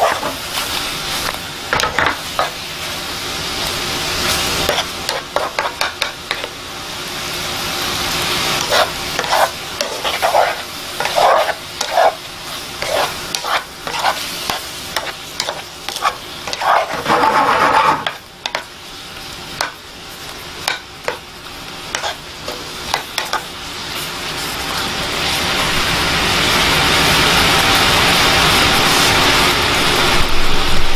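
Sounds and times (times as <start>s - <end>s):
utensil scraping a pot: 0.0s - 0.5s, 8.6s - 12.2s, 12.8s - 18.2s, 21.9s - 22.2s
steady sizzle: 0.0s - 30.9s.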